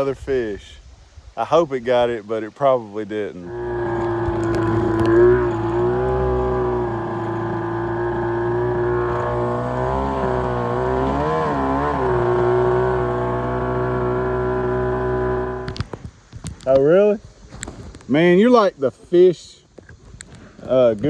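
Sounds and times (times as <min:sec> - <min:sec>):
boat engine running: 0:03.4 - 0:15.8.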